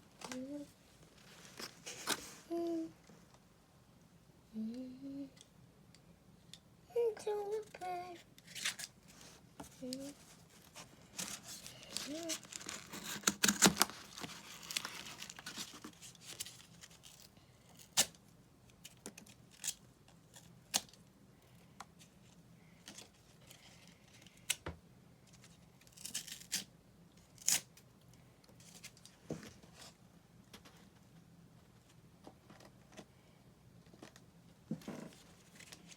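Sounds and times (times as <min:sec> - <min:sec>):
cardboard tearing and rustling: 0:10.6 - 0:17.2
cardboard snapping: 0:12.3 - 0:15.0.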